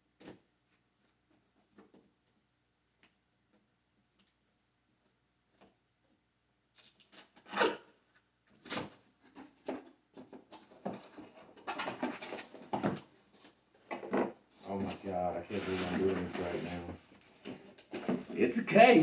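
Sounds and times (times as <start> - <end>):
cardboard scraping: 14.7 - 19.0.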